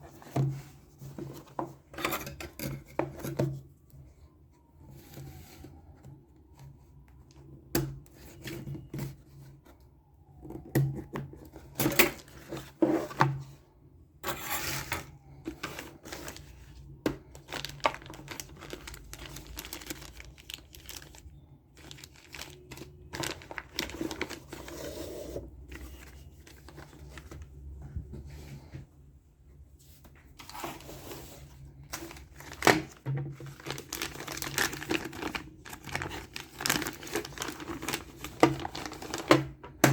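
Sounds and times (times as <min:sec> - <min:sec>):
plastic packaging crinkling and tearing: 0:14.4 - 0:27.6, 0:31.8 - 0:39.9.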